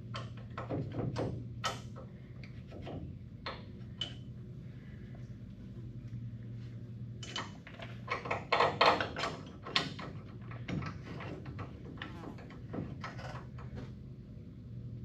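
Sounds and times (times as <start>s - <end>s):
metal parts clicking and clanking: 0.0s - 2.1s, 7.2s - 13.8s
steady low hum: 0.0s - 15.0s.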